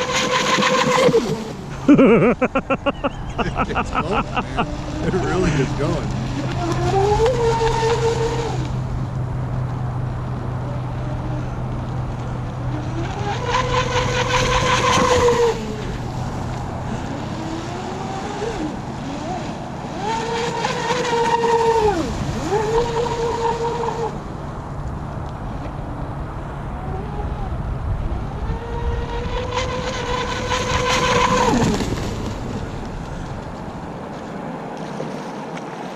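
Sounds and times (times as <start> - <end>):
electric boat motor whining: 0.0 - 33.8.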